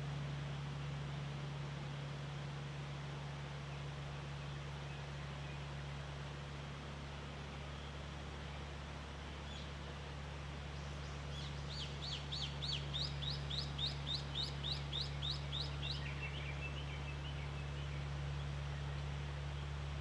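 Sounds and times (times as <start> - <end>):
steady low hum: 0.0 - 20.0
songbird chirping: 10.8 - 19.7.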